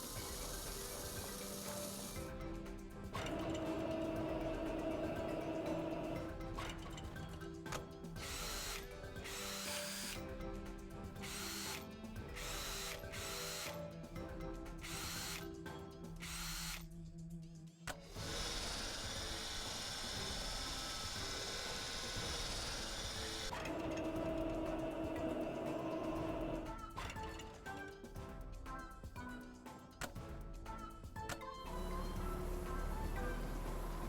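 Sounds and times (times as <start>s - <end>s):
power tool bursts: 0.0s - 2.2s, 8.2s - 10.2s, 11.2s - 11.8s, 12.4s - 13.8s, 14.8s - 15.4s, 17.9s - 26.6s
background music: 0.0s - 34.0s.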